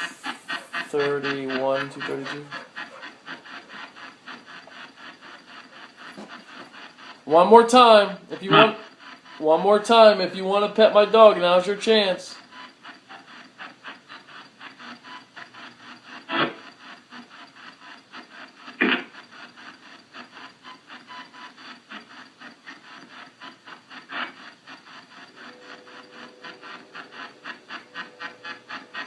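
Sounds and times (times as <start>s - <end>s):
pulsing radio static: 7.7s - 8.8s.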